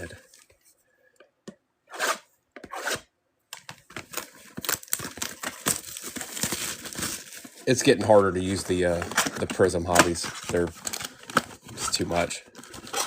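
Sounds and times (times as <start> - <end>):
packaging crinkling: 3.7 - 13.0
packaging ripping: 4.0 - 13.0.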